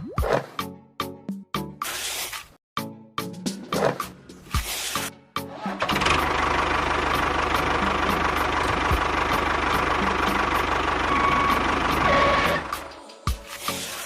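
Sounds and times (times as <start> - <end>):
engine running with rapid beat: 5.8 - 13.0.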